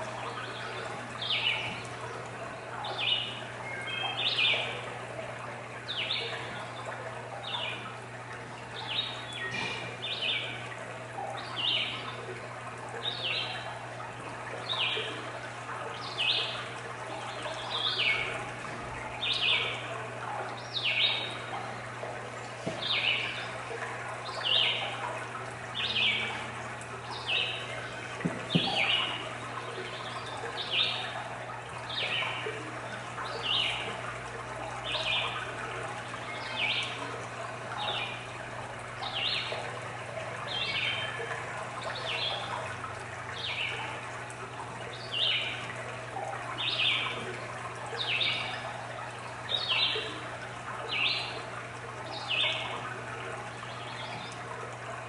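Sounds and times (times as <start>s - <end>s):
faint steady hum: 0.0s - 55.0s
running water: 0.0s - 55.0s
knock: 28.2s - 28.8s.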